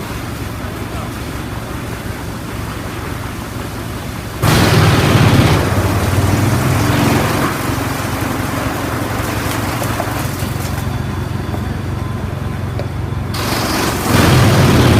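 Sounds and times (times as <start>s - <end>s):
wood chipper droning: 0.0s - 14.9s
wood chipper chipping wood: 4.4s - 11.3s, 13.3s - 14.9s.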